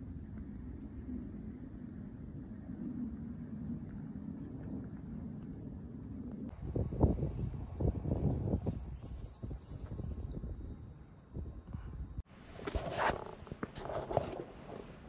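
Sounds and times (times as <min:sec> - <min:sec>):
small birds chirping: 0:04.7 - 0:12.2.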